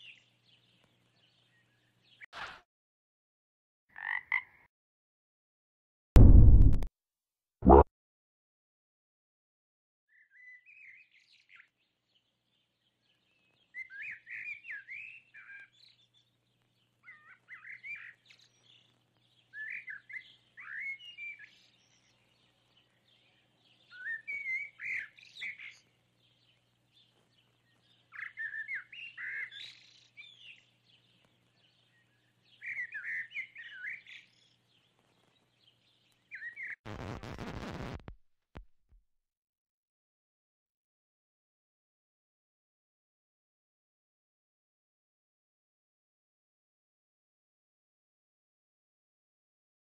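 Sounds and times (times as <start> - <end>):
bird song warbled phrases: 0.0 - 2.3, 10.1 - 36.8
loud rushing noise: 6.2 - 6.9.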